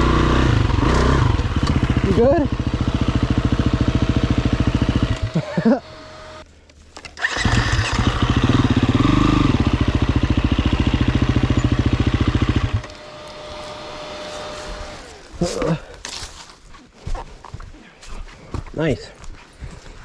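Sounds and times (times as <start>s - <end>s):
dirt bike engine idling: 0.0s - 6.4s, 7.2s - 15.8s.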